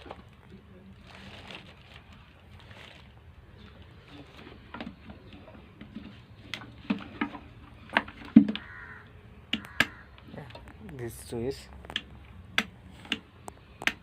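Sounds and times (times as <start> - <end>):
plastic clicks and knocks: 4.7 - 8.7, 9.5 - 11.0, 11.8 - 14.0.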